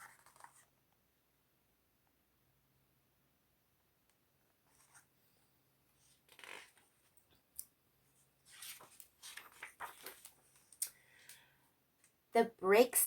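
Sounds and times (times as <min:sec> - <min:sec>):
book pages rustling: 0:00.0 - 0:00.7, 0:04.7 - 0:05.1, 0:08.4 - 0:10.8.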